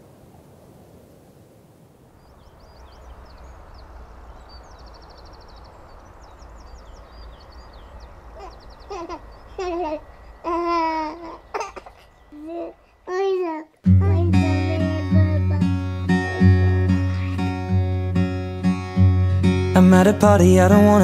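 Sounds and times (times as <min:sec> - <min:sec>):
low outdoor rumble: 0:02.1 - 0:21.0
small birds chirping and trilling: 0:02.1 - 0:21.0
young child's voice: 0:09.6 - 0:16.6.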